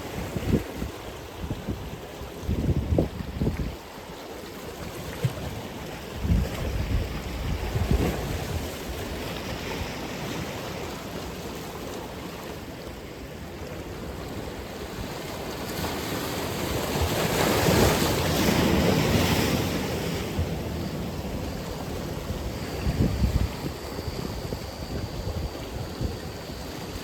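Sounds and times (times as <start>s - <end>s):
wind on microphone: 0.0s - 3.8s, 6.1s - 10.4s, 16.0s - 27.0s
waves washing ashore: 0.0s - 27.0s.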